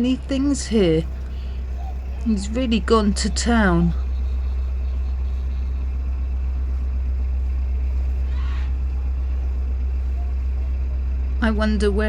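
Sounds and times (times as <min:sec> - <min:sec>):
boat diesel engine rumble: 0:00.0 - 0:12.0.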